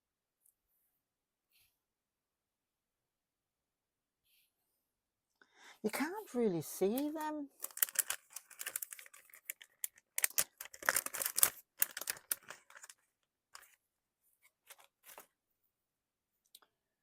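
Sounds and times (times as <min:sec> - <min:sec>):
craft materials rustling and crinkling: 0:06.3 - 0:13.8, 0:14.4 - 0:15.4.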